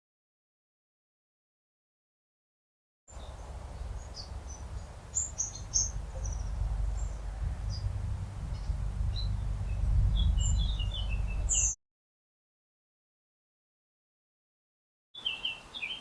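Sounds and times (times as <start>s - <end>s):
songbirds chirping: 3.1s - 11.8s, 15.2s - 16.0s
steady low rumble: 3.1s - 11.8s.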